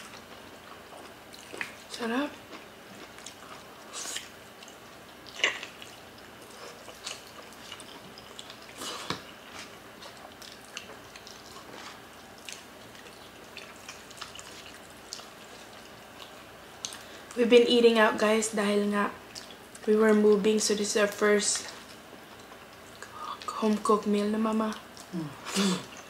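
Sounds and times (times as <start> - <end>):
wet chewing: 0.0 - 1.9, 2.5 - 17.4, 19.3 - 19.9, 24.7 - 25.2
lip smacks: 3.1 - 9.3.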